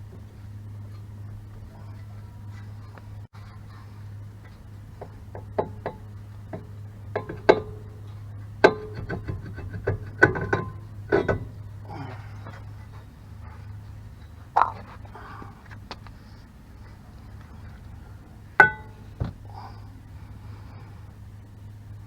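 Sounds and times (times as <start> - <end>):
steady low hum: 0.0 - 22.0
metal tools knocking and clinking: 5.4 - 11.7, 18.6 - 19.3.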